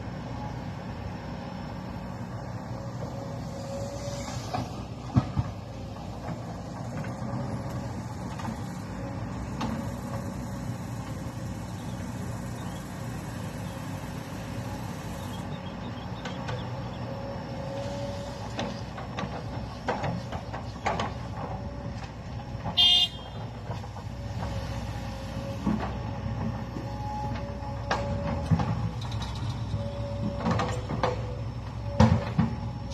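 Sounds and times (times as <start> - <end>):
dump truck engine running: 0.0 - 32.9
knocks and clanks: 18.5 - 24.6, 30.2 - 32.7
high-pitched horn toot: 22.8 - 23.4.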